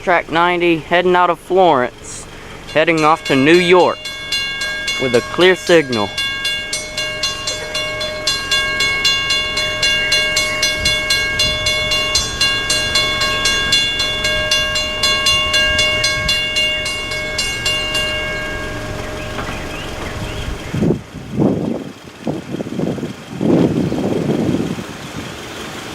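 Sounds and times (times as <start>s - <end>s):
train wheels clicking over rail joints: 2.0s - 24.8s
steady high-pitched tone: 2.6s - 21.1s.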